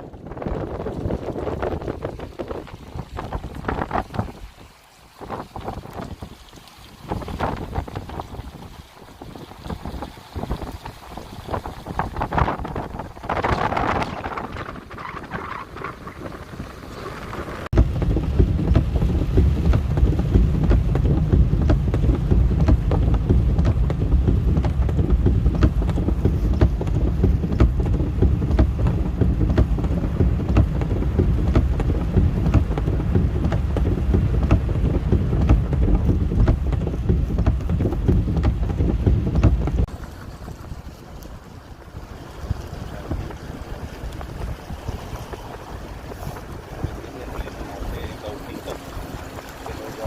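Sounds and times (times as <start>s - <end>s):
rain pattering: 0.0s - 50.0s
wind buffeting microphone: 0.0s - 50.0s.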